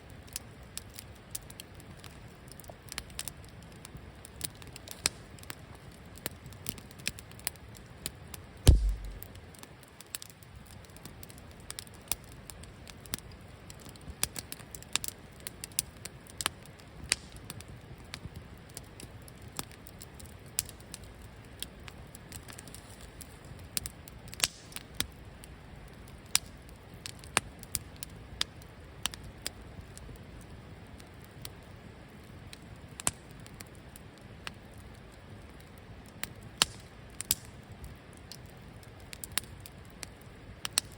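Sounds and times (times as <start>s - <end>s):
soft steady hiss: 0.0s - 9.4s
campfire crackling and popping: 0.0s - 40.9s
dull heavy thump: 8.7s - 9.2s.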